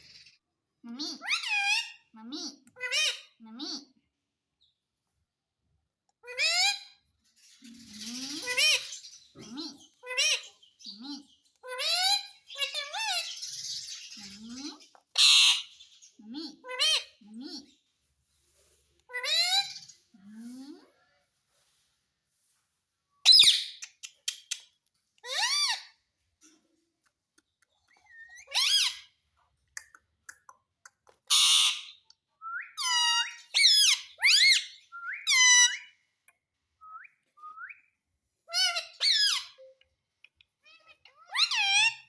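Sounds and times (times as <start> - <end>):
parrot squawking and whistling: 23.2 - 23.8, 28.1 - 29.1, 31.3 - 36.0, 38.5 - 39.7, 40.8 - 42.0.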